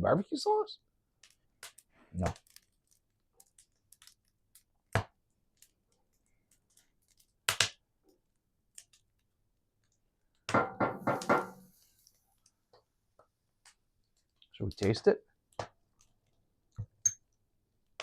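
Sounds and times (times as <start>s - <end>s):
sharp knocks: 10.5s - 11.7s.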